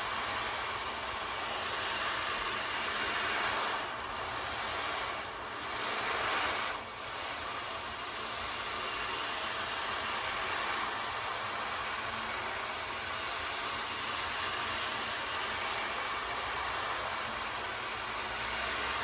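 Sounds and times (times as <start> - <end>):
beads rolling on wave board: 5.7 - 6.8.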